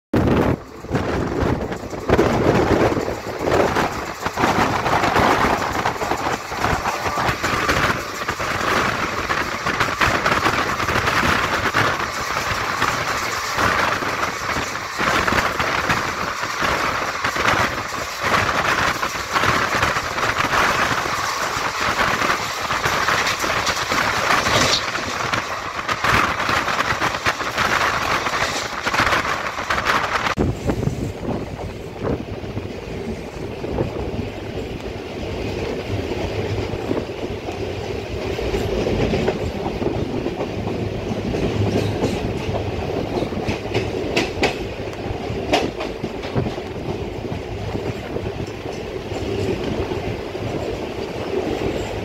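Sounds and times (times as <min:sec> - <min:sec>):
train wheels rushing on rails: 0:00.1 - 0:52.0
wind rushing: 0:00.1 - 0:52.0
wheels clattering over track: 0:00.2 - 0:30.4.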